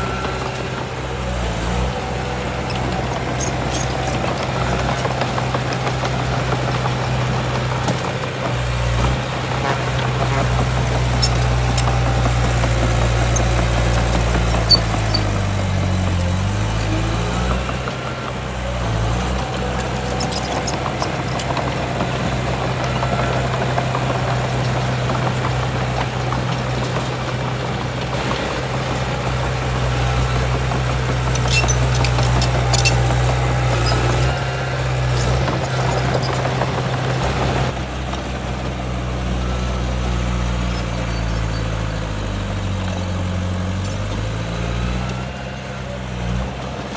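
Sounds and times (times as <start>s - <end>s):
heavy diesel engine running: 0.0s - 46.9s
sharp clicks and clanks: 2.7s - 34.5s.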